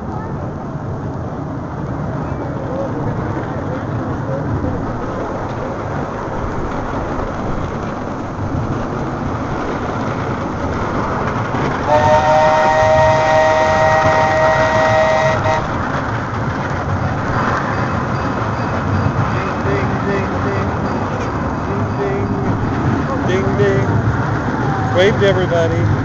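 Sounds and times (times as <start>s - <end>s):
steam train rumbling on track: 0.0s - 26.0s
steam train whistle chord: 11.9s - 15.7s.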